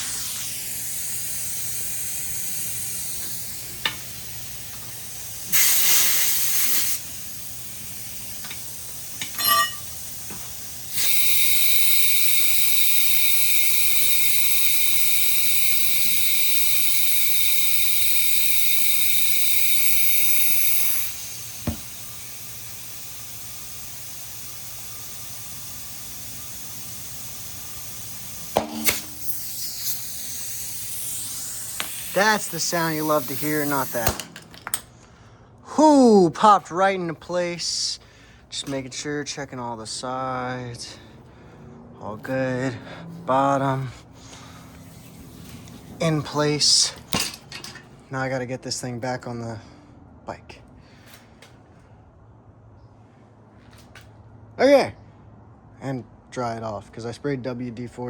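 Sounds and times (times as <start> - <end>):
compressed air hissing into tire: 0.0 - 34.6, 36.5 - 41.5, 42.2 - 47.8
tire bead snapping: 2.8 - 15.5, 18.4 - 22.4, 27.5 - 32.2, 34.0 - 35.0.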